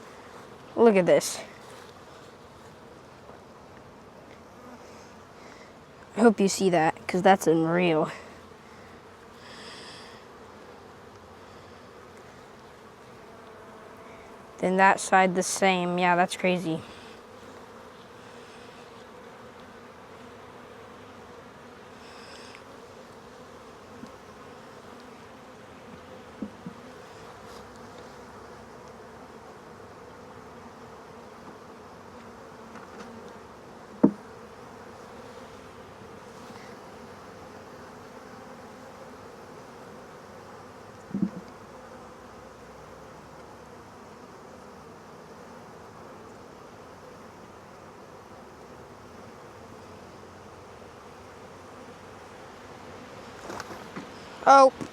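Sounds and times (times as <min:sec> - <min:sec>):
bees buzzing: 0:00.0 - 0:54.9
brief knocks: 0:41.1 - 0:41.5.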